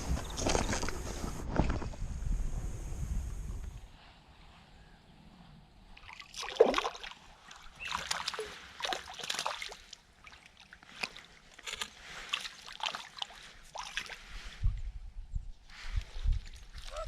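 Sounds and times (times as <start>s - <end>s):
water splashing against kayak: 6.0s - 14.6s.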